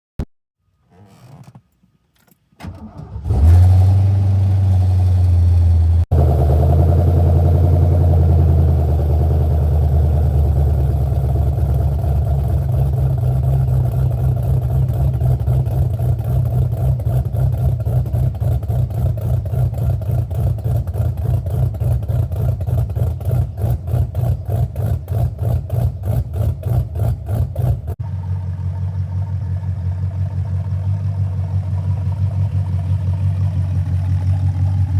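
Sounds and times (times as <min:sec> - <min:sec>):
car engine starting: 0:00.8 - 0:34.9
car engine idling with lope: 0:04.6 - 0:34.9.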